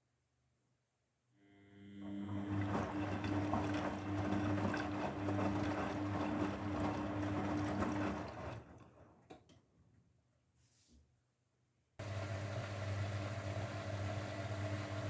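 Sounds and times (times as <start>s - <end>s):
washing machine motor hum: 1.7s - 9.3s, 12.0s - 15.0s.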